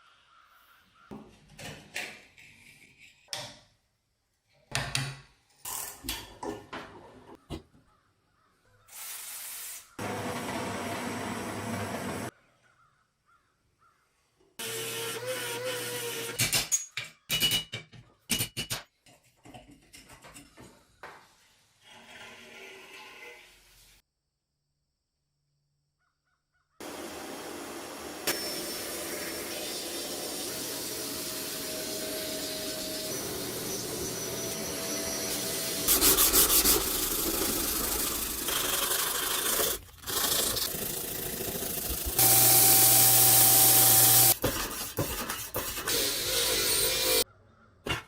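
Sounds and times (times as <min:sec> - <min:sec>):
whirring hiss: 0:26.8 - 0:44.4
metal scraping rasps: 0:32.3 - 0:47.2.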